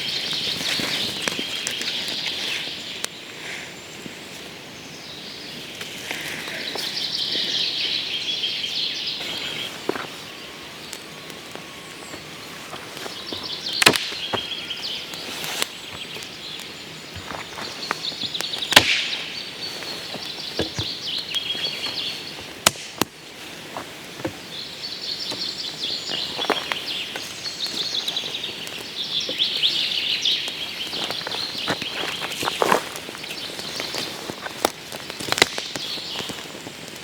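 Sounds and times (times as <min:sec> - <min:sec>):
songbirds chirping: 0:00.0 - 0:37.0.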